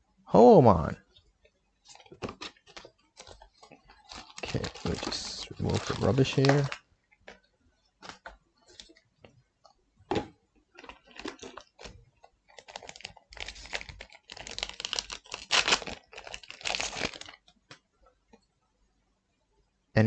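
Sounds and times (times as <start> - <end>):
wrapper crinkling: 1.9 - 6.8, 10.8 - 17.5.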